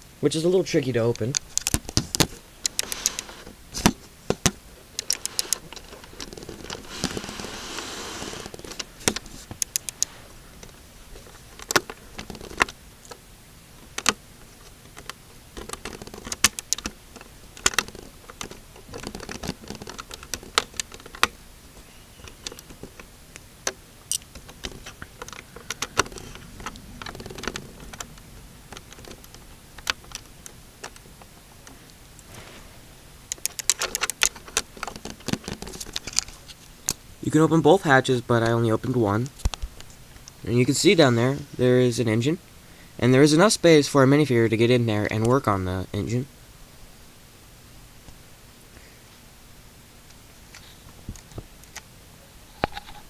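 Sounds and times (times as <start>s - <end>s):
rustling scrape: 2.0s - 4.2s, 5.0s - 10.4s, 31.7s - 33.2s
plastic bricks clicking: 14.9s - 21.4s, 22.2s - 32.3s, 33.3s - 37.0s.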